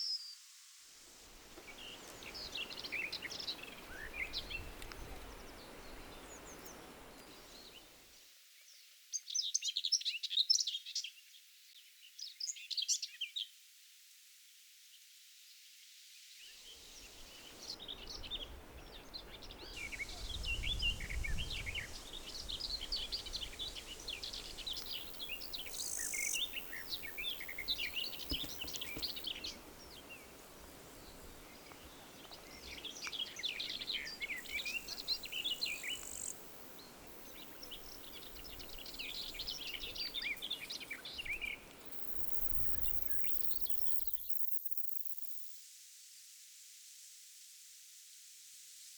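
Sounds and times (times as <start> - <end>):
steady outdoor hiss: 0.0 - 48.9
small birds chirping: 1.6 - 8.0, 16.4 - 45.6.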